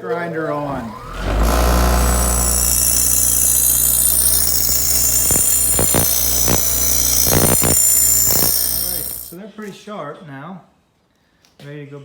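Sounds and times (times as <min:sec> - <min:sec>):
bench grinder motor humming: 0:00.6 - 0:09.4
grinding wheel hiss and whine: 0:00.6 - 0:09.4.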